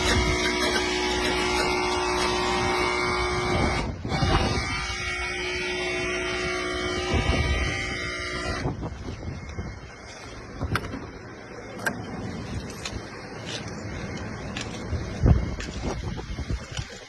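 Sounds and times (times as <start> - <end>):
mechanical hum and whine: 0.0 - 17.0.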